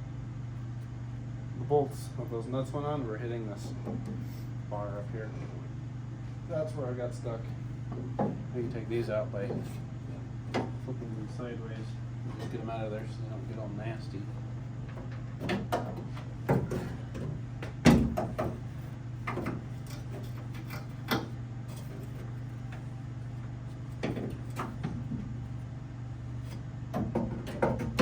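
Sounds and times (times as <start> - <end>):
steady low hum: 0.0 - 28.0
clicks and knocks of car parts: 14.9 - 22.8, 23.9 - 25.3, 26.5 - 28.0.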